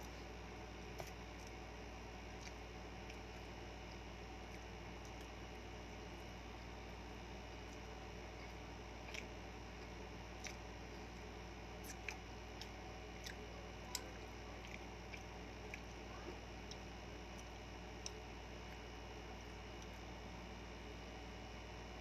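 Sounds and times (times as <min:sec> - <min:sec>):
steady low hum: 0:00.0 - 0:22.0
mouth chewing clicks and smacks: 0:02.3 - 0:03.2, 0:09.0 - 0:10.7, 0:11.8 - 0:16.0.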